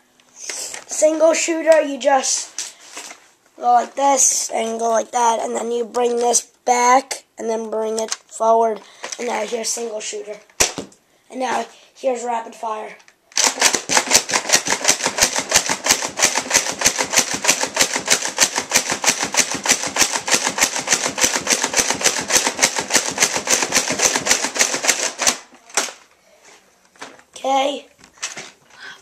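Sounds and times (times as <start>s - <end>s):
toy blaster clacking and firing: 13.3s - 26.0s.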